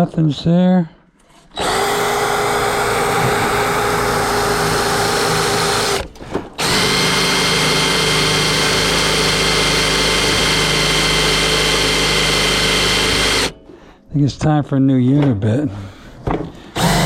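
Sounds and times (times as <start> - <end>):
power drill boring hole: 1.4 - 13.7, 16.6 - 17.0.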